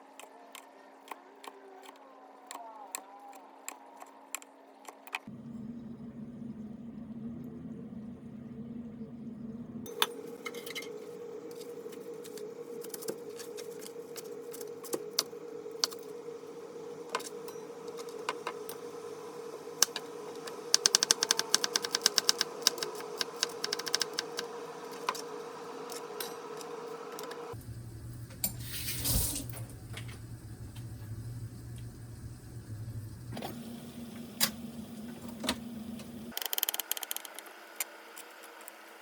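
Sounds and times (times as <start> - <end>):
steady hum: 5.2 - 36.4
utensils clicking and tapping: 19.8 - 25.3.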